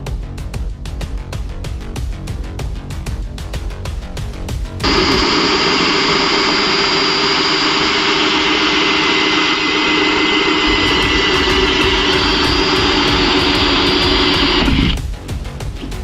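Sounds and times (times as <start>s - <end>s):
cordless drill motor whine: 4.8s - 15.0s
loud hiss: 4.8s - 15.1s.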